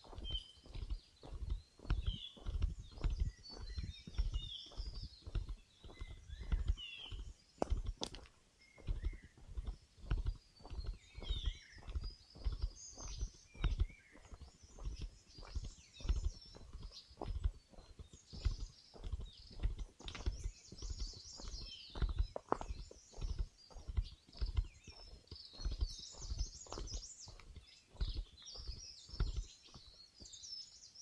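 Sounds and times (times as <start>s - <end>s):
birds chirping and whistling: 0.0s - 31.0s
footsteps on forest trail: 0.0s - 31.0s.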